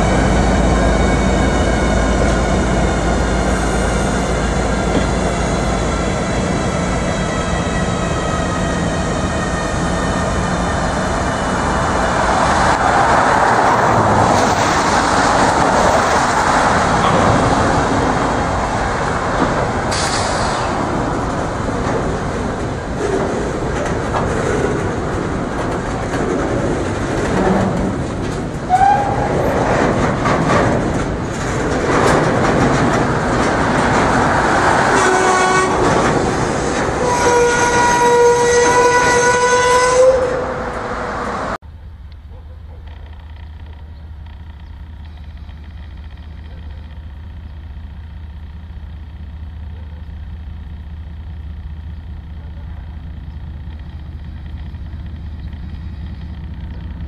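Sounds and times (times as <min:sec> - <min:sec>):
wheels clattering on rail joints: 0:00.0 - 0:41.6, 0:42.2 - 0:57.0
freight train rumbling past: 0:00.0 - 0:57.0.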